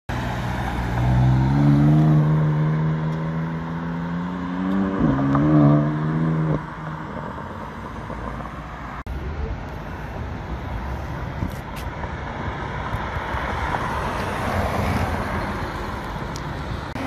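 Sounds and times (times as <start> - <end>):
traffic noise: 0.1 - 17.0
car engine accelerating: 0.2 - 9.0.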